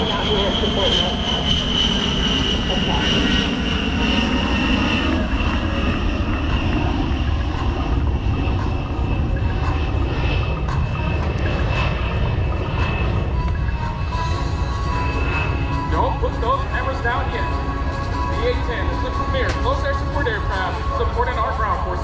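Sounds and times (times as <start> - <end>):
jet engines rumbling and whining: 0.0 - 22.0.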